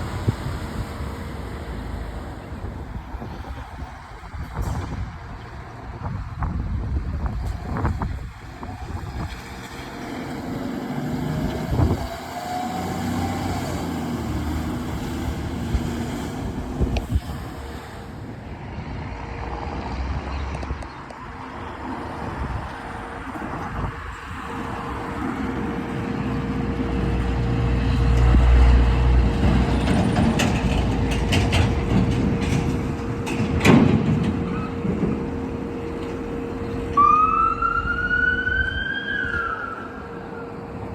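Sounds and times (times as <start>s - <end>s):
heavy vehicle engine rumbling past: 0.0s - 40.9s
street traffic: 0.0s - 40.9s
emergency siren wailing: 33.0s - 40.9s.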